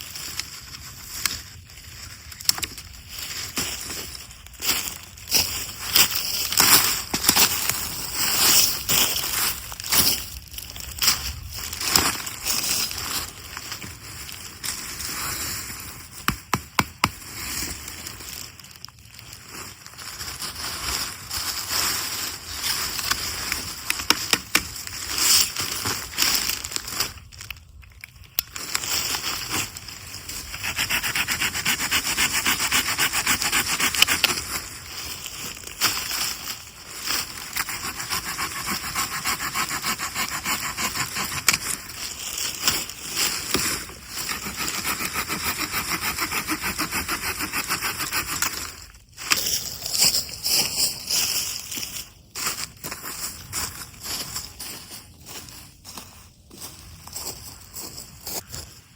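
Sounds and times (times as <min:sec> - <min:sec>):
wood being sawn by hand: 0:30.4 - 0:34.5, 0:37.4 - 0:41.7, 0:43.5 - 0:48.6.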